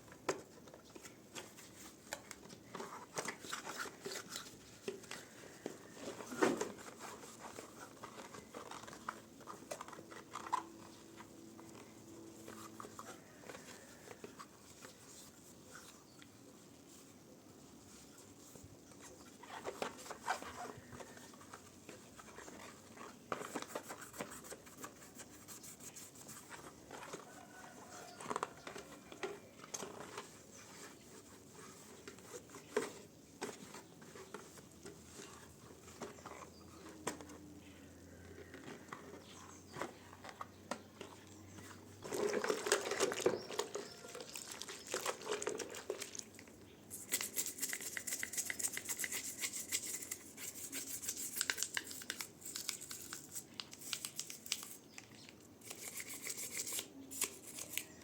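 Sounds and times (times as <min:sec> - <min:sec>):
hand scrubbing: 0:46.9 - 0:54.7.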